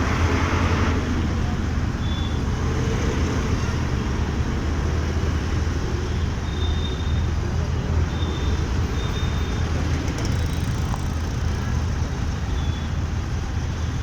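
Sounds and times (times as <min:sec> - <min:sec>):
road and traffic noise: 0:00.0 - 0:14.0
motorcycle engine rumble: 0:09.5 - 0:13.8.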